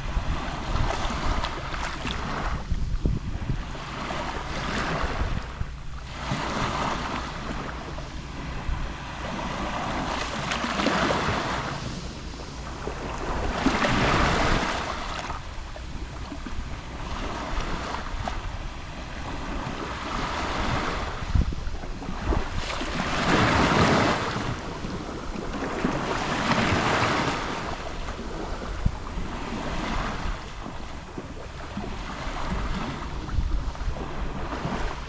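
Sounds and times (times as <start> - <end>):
small waves lapping on shore: 0.0 - 35.0
wind rumble on microphone: 0.0 - 35.0.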